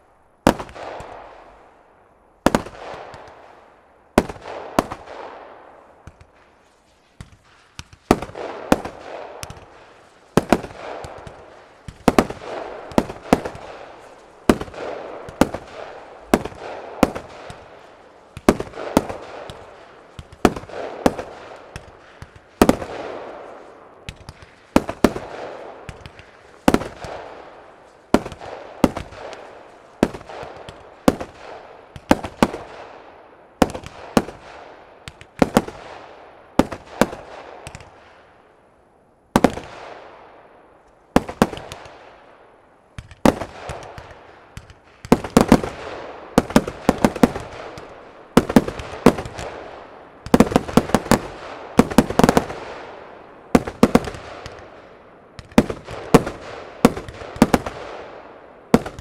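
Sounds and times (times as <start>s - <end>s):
fireworks bangs: 0.0s - 1.5s, 2.4s - 38.4s, 39.3s - 40.2s, 41.1s - 59.0s
fireworks hissing and crackling: 6.0s - 32.7s, 43.0s - 49.6s, 50.2s - 52.8s.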